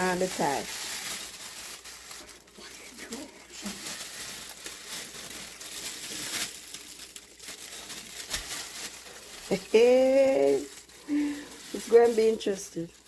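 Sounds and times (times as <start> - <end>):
person's voice: 0.0 - 0.7, 9.5 - 12.9
plastic bag crinkling: 0.0 - 13.0.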